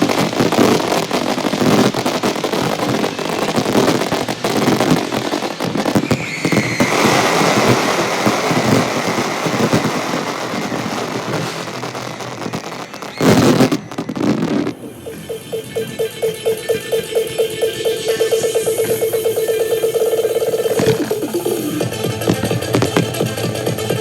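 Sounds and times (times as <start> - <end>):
fireworks bursting and crackling: 0.0 - 24.0
high whistle-like tone: 6.0 - 8.1, 11.5 - 21.9.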